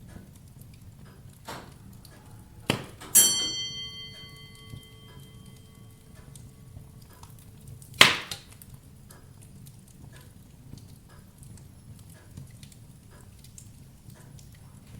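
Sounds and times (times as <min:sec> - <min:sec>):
fire crackling: 0:00.0 - 0:14.9
wood fire pop: 0:01.4 - 0:03.2, 0:07.0 - 0:09.2
low rumble of flames: 0:06.3 - 0:14.9.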